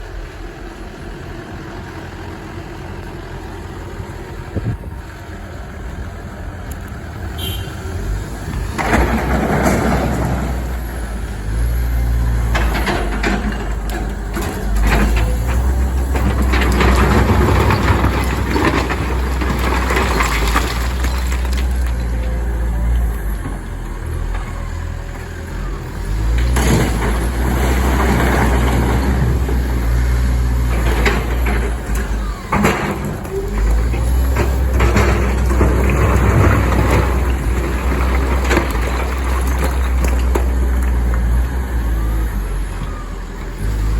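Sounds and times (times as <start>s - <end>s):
excavator diesel engine rumbling: 0.0s - 43.9s
rock scraping and clattering: 12.4s - 22.4s, 30.6s - 41.5s.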